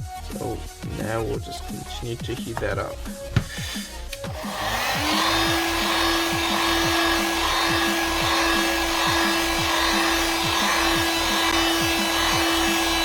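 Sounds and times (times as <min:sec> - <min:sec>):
heat gun blowing: 0:03.2 - 0:13.0.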